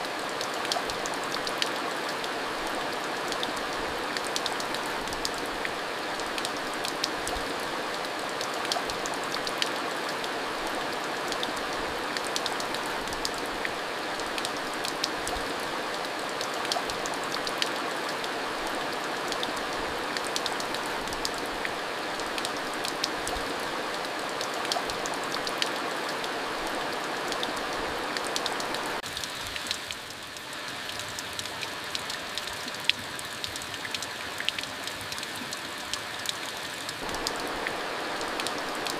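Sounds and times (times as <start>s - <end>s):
steady rain falling: 0.0s - 38.9s
raindrops ticking: 3.1s - 7.5s, 28.2s - 38.9s.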